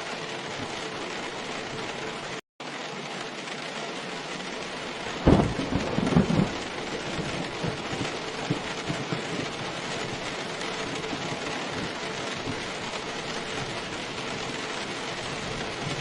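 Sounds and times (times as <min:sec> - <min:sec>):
heavy rainfall: 0:00.0 - 0:16.0
thunder rumbling: 0:04.4 - 0:16.0.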